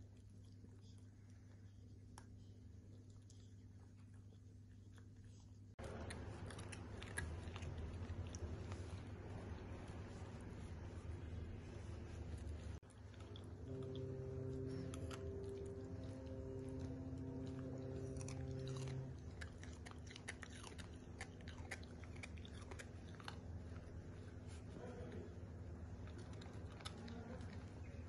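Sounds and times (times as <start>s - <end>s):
low hum: 0.0s - 28.0s
dog crunching raw vegetables: 5.8s - 10.7s, 12.3s - 25.2s, 25.9s - 28.0s.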